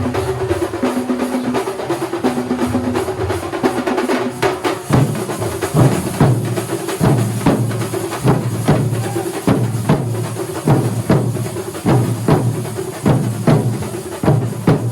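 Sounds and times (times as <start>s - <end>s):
drum ensemble playing: 0.0s - 14.9s
deep drum strokes booming: 2.2s - 14.9s.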